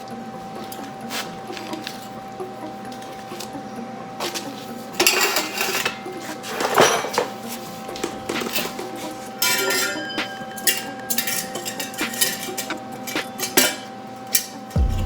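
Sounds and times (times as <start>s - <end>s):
metal tools clinking: 5.0s - 14.7s.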